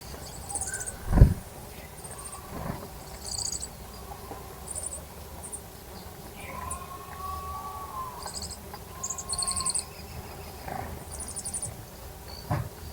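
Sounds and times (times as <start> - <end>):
small birds buzzy chirps: 0.0 - 12.9
low thump: 1.0 - 1.5.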